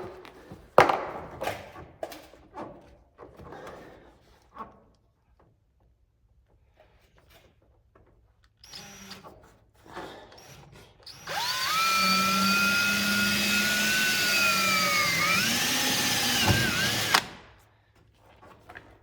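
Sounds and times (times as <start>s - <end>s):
power drill drilling into steel: 8.6s - 9.3s, 10.4s - 17.5s.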